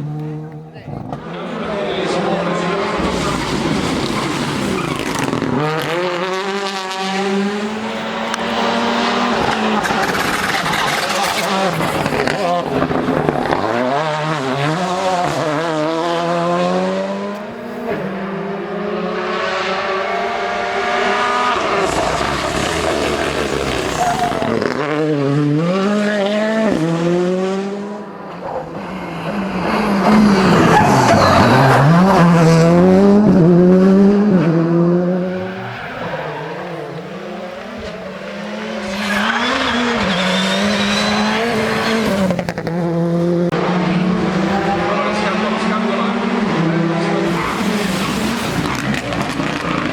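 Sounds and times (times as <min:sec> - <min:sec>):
rally car engine accelerating: 0:00.0 - 0:49.9
tyre noise: 0:00.1 - 0:16.1, 0:20.3 - 0:26.9.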